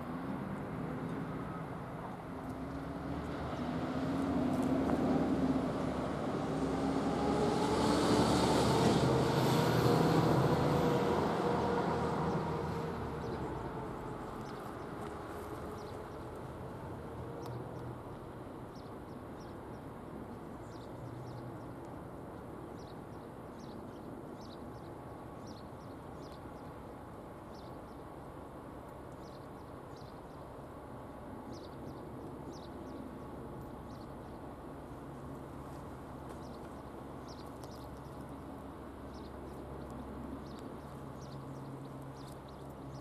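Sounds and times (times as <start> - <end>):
small birds chirping: 12.3 - 16.6, 17.2 - 18.0, 18.6 - 28.2, 28.9 - 30.6, 31.4 - 43.0.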